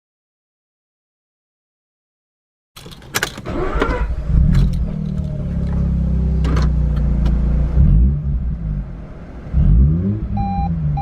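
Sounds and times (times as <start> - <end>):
rotary engine revving: 3.4 - 11.0.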